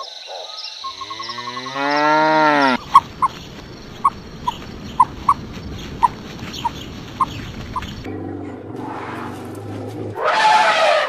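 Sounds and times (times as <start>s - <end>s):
cow mooing: 0.9s - 2.8s.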